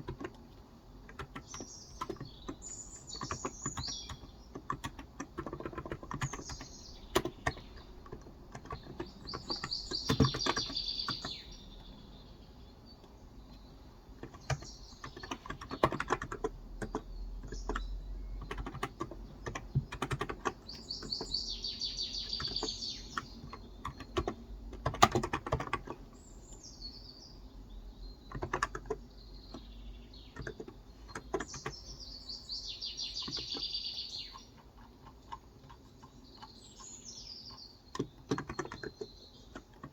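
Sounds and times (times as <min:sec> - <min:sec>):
soft keyboard keystrokes: 0:00.0 - 0:11.5, 0:14.2 - 0:21.4, 0:22.3 - 0:26.6, 0:28.2 - 0:29.7, 0:30.3 - 0:32.0, 0:37.5 - 0:39.9
birds singing: 0:00.0 - 0:39.9.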